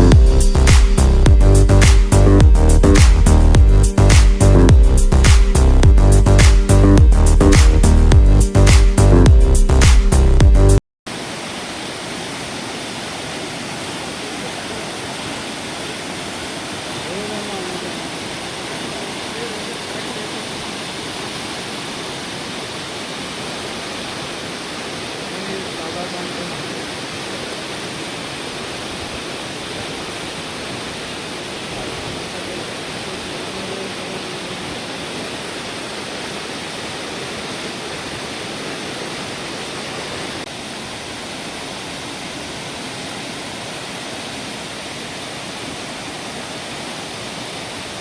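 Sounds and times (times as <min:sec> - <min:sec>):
water rushing: 0:00.0 - 0:48.0.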